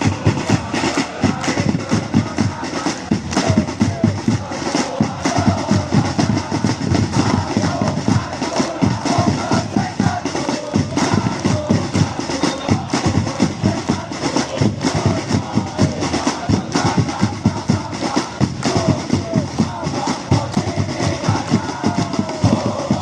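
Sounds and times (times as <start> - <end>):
crowd chanting: 0.0 - 23.0
rapid drumming: 0.0 - 23.0.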